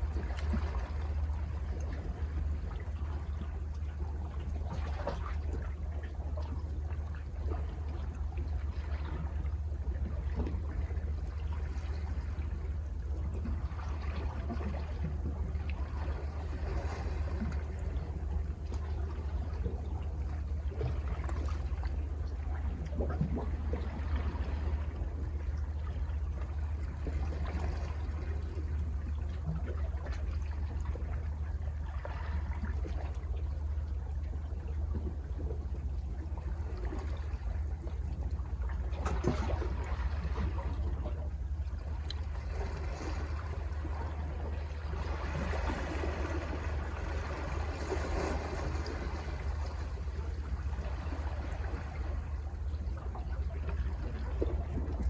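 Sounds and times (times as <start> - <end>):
steady low rumble: 0.0 - 55.0
sea water washing over rocks: 42.3 - 52.4.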